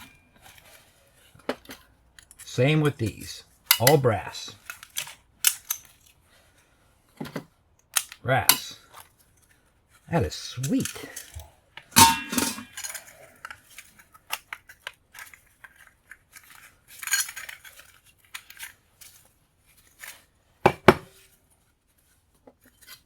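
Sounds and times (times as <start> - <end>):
brass scrap clinking and clattering: 10.6 - 13.1.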